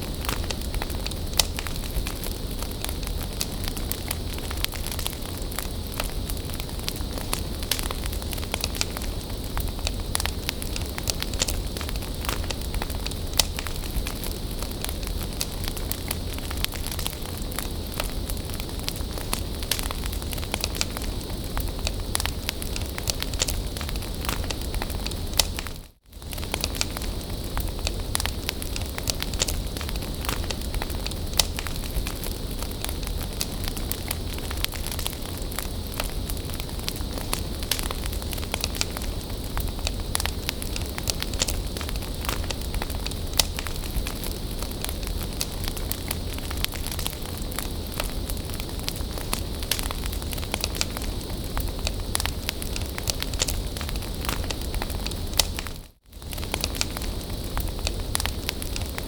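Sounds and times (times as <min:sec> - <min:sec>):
bonfire flames hissing: 0:00.0 - 0:59.0
burning wood crackling: 0:00.0 - 0:59.0
fire popping: 0:00.0 - 0:59.0.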